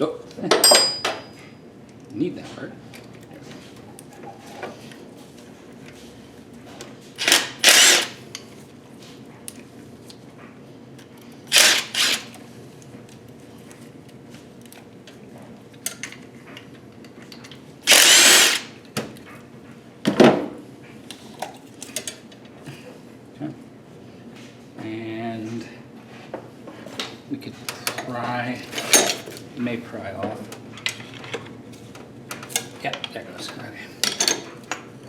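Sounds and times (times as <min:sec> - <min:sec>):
handheld power tool bursts: 0:07.2 - 0:08.2, 0:11.5 - 0:12.4, 0:17.9 - 0:18.8.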